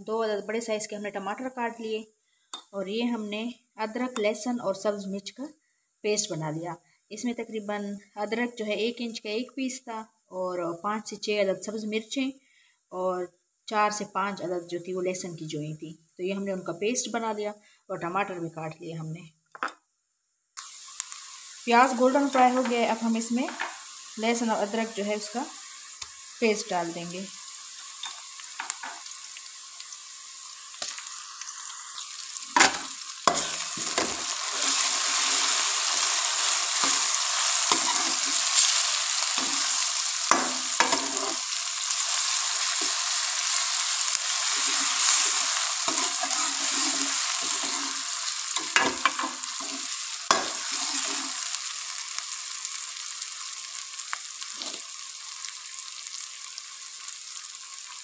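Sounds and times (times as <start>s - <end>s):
paste sizzling in hot oil: 20.6s - 58.0s
metal spoon scraping a pan: 32.5s - 35.8s, 36.4s - 41.5s, 44.0s - 51.5s.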